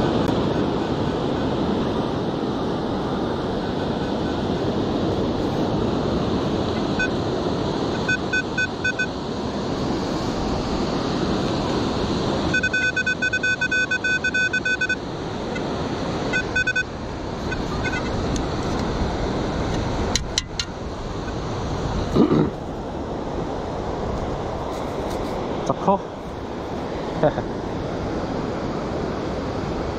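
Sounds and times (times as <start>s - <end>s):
wind noise: 0.0s - 14.3s, 15.0s - 29.9s
metal detector high beeps: 6.9s - 7.2s, 7.9s - 9.2s, 12.5s - 15.0s, 16.3s - 18.2s.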